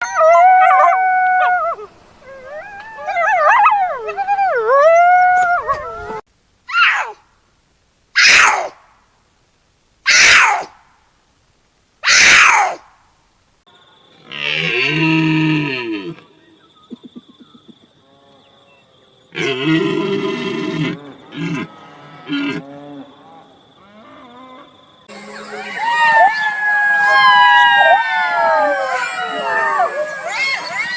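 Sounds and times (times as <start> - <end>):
coyotes howling and yipping: 0.0 - 7.2, 8.2 - 8.8, 10.1 - 10.8, 12.0 - 12.8, 16.1 - 30.9.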